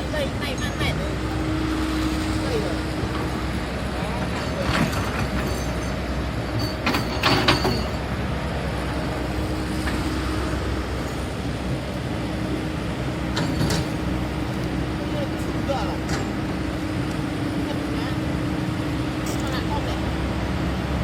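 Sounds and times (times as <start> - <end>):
excavator diesel engine: 0.0 - 21.0
metallic clanks: 4.1 - 8.1, 13.3 - 14.1.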